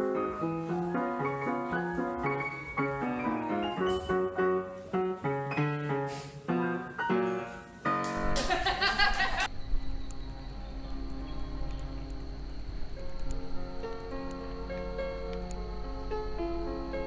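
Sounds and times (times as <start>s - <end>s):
piano melody: 0.0s - 17.0s
noisy sound with low rumble: 8.2s - 17.0s.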